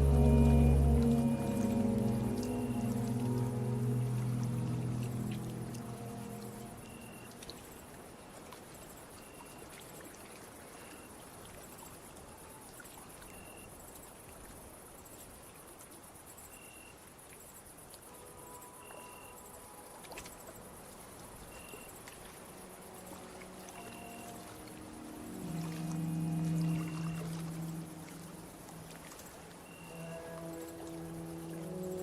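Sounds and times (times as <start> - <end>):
faint held music notes: 0.0 - 7.6, 22.3 - 32.0
soft wash of water: 0.0 - 16.3, 17.2 - 32.0
insect short chirps: 16.4 - 17.0
insect high trill: 22.6 - 32.0.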